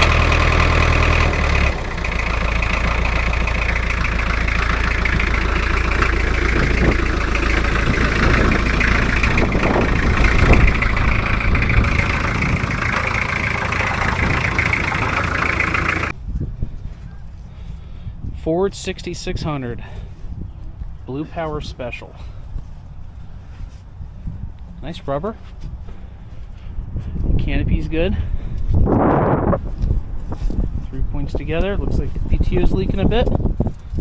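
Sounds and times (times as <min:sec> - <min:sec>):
engine idling: 0:00.0 - 0:16.2.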